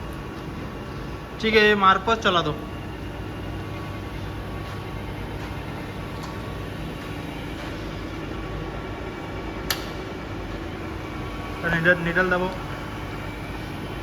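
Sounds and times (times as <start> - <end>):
grinding machine humming: 0.0 - 14.0
sharp click: 9.7 - 10.0.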